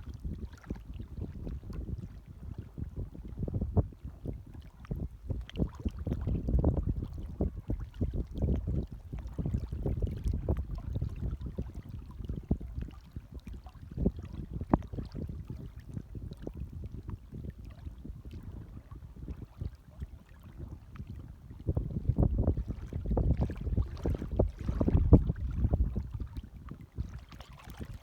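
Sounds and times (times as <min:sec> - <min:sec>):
small waves lapping: 0:22.6 - 0:28.0.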